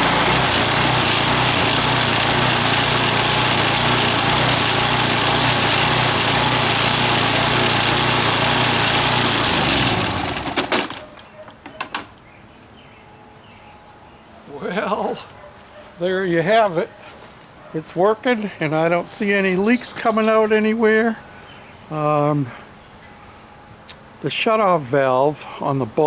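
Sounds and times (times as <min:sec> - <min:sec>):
small gasoline engine running: 0:00.0 - 0:11.2.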